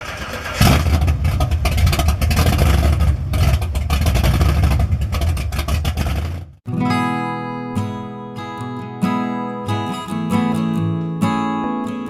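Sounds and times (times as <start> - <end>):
car engine running rough: 0.0 - 6.6.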